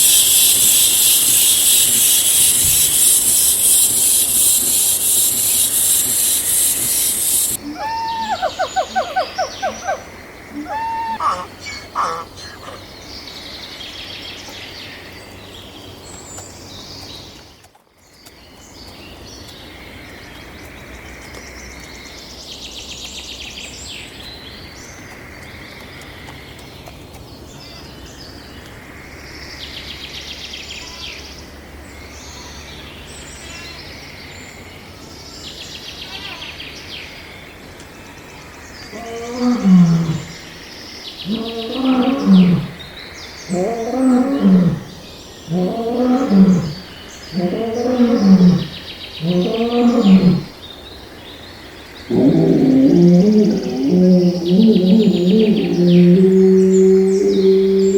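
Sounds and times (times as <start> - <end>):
poultry hissing: 0.0 - 9.8
poultry pulsed calls: 0.0 - 12.8
poultry chirps and raspy calls: 0.0 - 13.0, 38.9 - 40.6, 41.2 - 44.9
outdoor background noise: 0.0 - 57.9.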